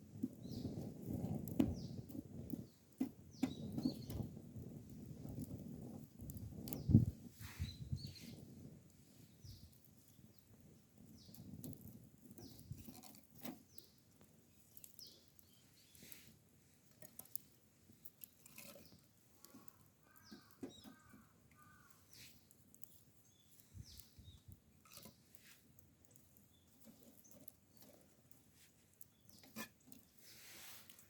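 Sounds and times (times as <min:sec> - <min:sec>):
bird chirps: 0:18.8 - 0:22.3.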